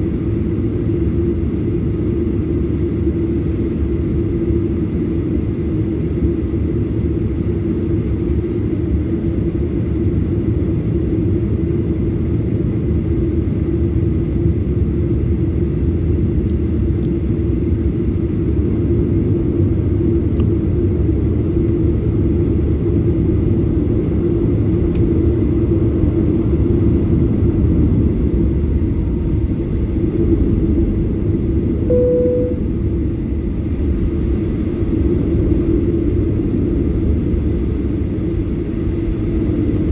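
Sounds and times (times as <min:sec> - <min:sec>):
aircraft cabin engine rumble: 0:00.0 - 0:39.9
single tone: 0:31.9 - 0:32.9.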